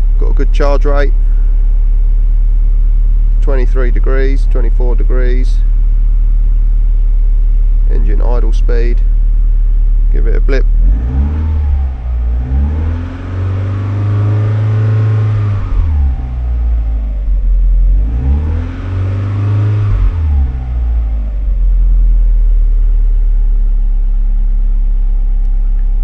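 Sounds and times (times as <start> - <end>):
car engine idling: 0.0 - 26.0
car engine revving: 0.0 - 26.0.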